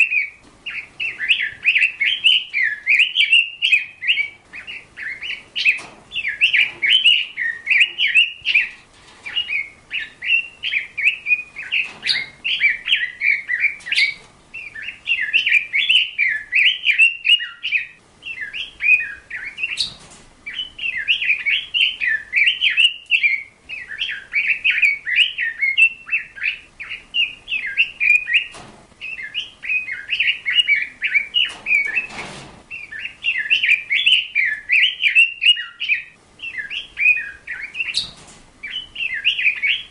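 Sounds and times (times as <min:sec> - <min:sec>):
small bird twittering: 0:00.0 - 0:39.9.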